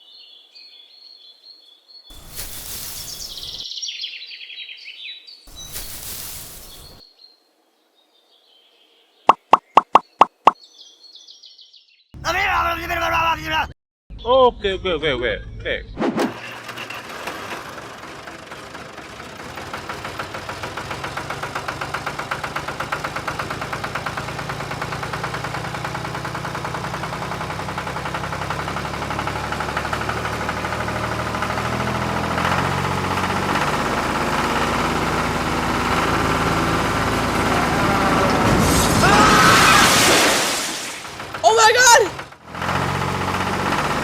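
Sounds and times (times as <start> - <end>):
engine running with fast knocking: 16.5 - 38.5, 42.1 - 44.0.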